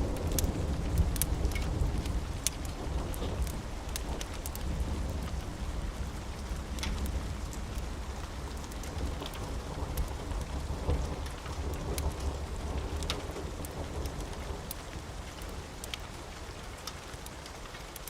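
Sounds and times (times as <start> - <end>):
sharp crackles: 0.0 - 5.5
low thunder rumble: 0.0 - 15.7
steady rain: 0.0 - 18.0.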